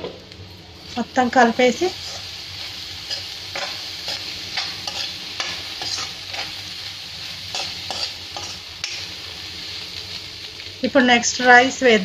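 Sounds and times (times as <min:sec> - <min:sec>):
food sizzling in oil: 0:00.0 - 0:12.0
spatula scraping pan: 0:02.0 - 0:06.6, 0:07.5 - 0:09.0.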